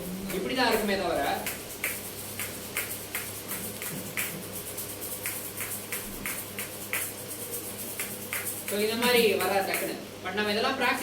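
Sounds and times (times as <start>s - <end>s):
pellet drum beating: 5.2s - 7.2s.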